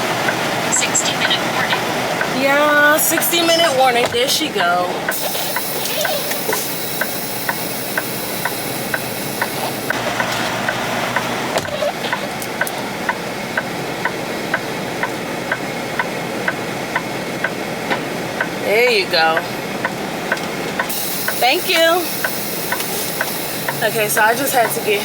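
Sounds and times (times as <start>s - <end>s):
diesel truck engine idling: 0.0s - 25.0s
air hissing: 5.0s - 11.7s, 20.8s - 25.0s.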